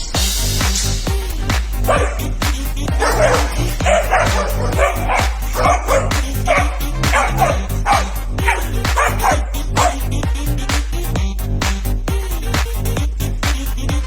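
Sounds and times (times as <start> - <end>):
music with bass beat: 0.0 - 14.0
dog barking: 1.9 - 2.3, 3.0 - 10.0.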